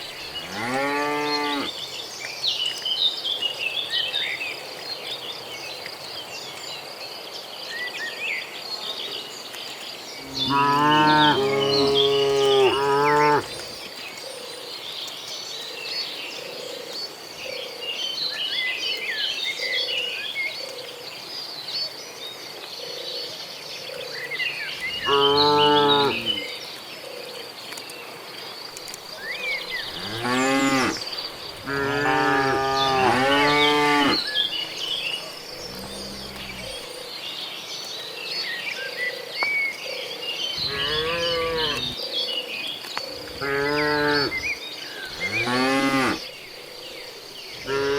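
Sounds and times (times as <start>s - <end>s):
cattle mooing: 10.2s - 13.5s, 25.0s - 26.4s, 29.9s - 31.0s, 31.6s - 34.3s, 35.6s - 36.8s, 40.6s - 42.0s, 45.1s - 46.2s.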